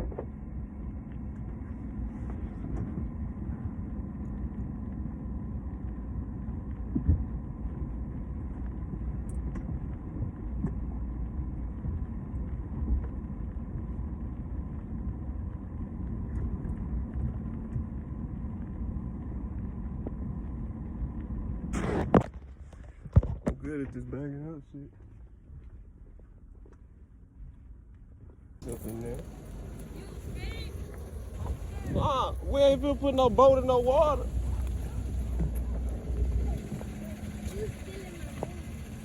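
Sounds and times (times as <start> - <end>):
faint steady hum: 28.6 - 39.0
truck engine rumbling: 28.6 - 39.0.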